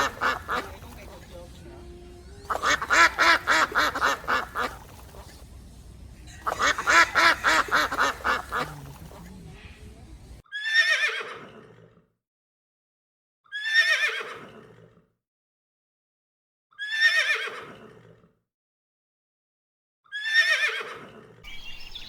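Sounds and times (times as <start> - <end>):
duck quacking: 0.0 - 10.4
horse whinnying: 10.5 - 11.6, 13.5 - 14.5.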